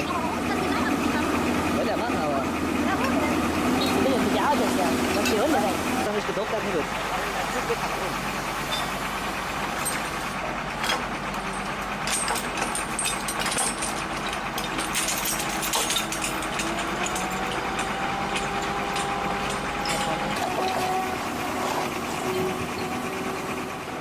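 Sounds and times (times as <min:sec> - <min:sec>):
engine running steadily: 0:00.0 - 0:24.0
clicks and clanks: 0:09.8 - 0:22.9.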